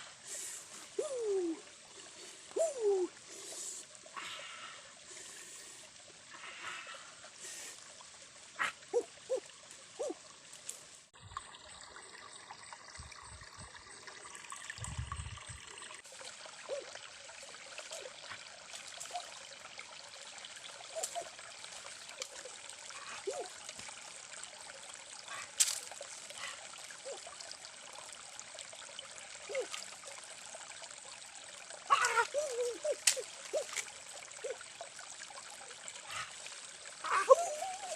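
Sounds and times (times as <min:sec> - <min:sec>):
water trickling in stream: 0:00.0 - 0:37.9
small splashes and clicks: 0:09.4 - 0:11.5, 0:16.0 - 0:36.6.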